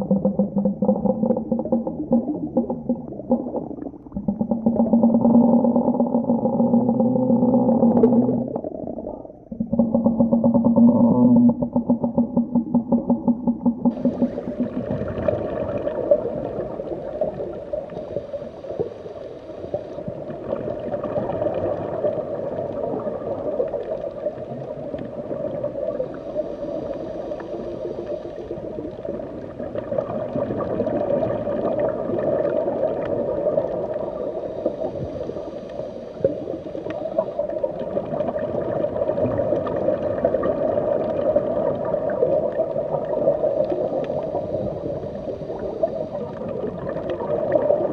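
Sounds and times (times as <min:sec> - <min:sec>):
underwater bubbling and gurgling: 0:00.0 - 0:47.9.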